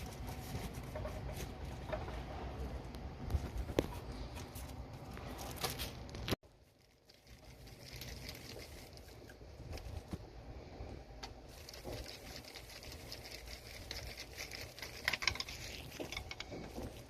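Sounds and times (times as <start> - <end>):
hands scraping and rustling parts: 11.3 - 17.0.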